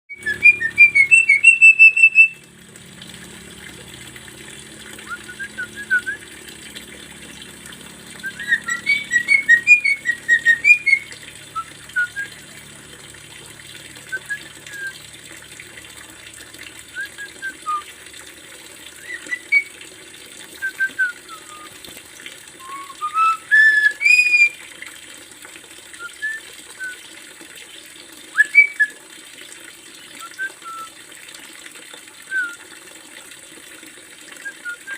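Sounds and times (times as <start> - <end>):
bird singing whistled notes: 0.1 - 2.4, 8.2 - 12.4, 19.0 - 19.7, 22.6 - 24.6, 28.4 - 28.9.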